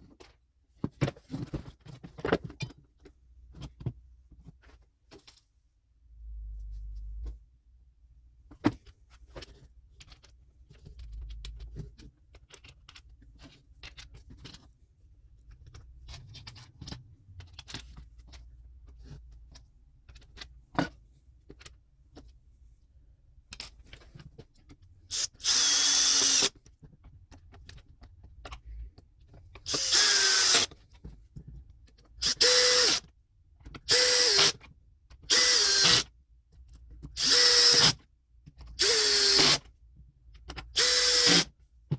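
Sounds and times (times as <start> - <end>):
electric chainsaw motor whining: 29.8 - 30.7.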